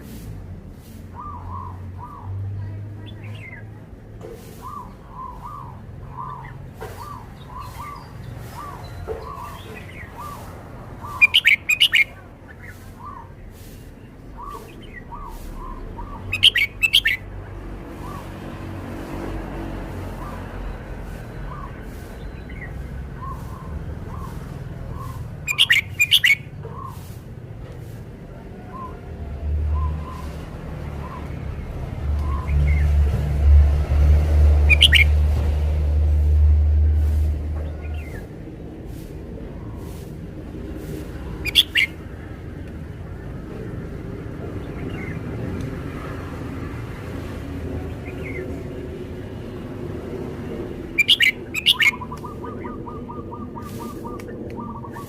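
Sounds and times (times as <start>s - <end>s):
bird whistled song: 1.1s - 2.3s, 4.6s - 13.3s, 14.0s - 17.2s, 20.2s - 27.0s, 28.7s - 29.1s, 29.7s - 30.4s, 31.0s - 31.4s, 32.2s - 32.9s, 34.7s - 35.2s, 41.4s - 42.0s, 50.9s - 55.0s.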